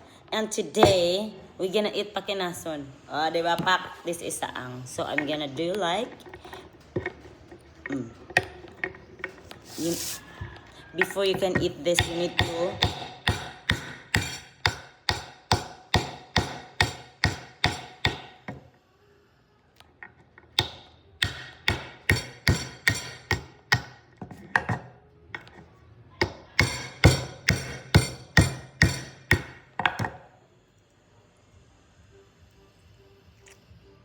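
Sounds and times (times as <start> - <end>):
hard tool cracking sea shells: 11.9 - 18.4, 20.5 - 24.0.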